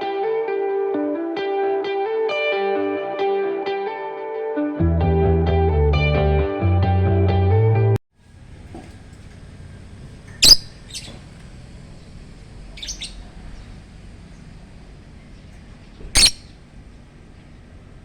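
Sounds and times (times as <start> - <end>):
lovebirds giving sharp high calls: 10.1 - 11.4, 12.0 - 14.5, 15.2 - 16.7.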